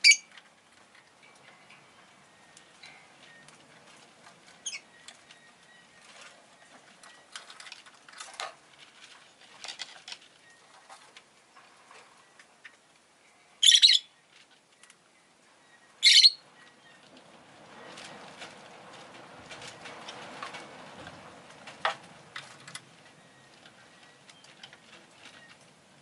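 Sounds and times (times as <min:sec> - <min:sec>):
bird high-pitched calls: 0:00.0 - 0:00.3, 0:04.6 - 0:07.3, 0:13.4 - 0:14.2, 0:15.6 - 0:17.0
faint rustling and scratching: 0:00.2 - 0:13.1, 0:14.2 - 0:15.0, 0:16.4 - 0:26.0.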